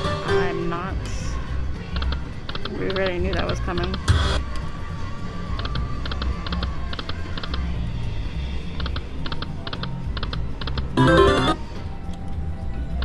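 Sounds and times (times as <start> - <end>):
looping background music: 0.0 - 13.0
slot machine electronic ticks: 10.9 - 11.6.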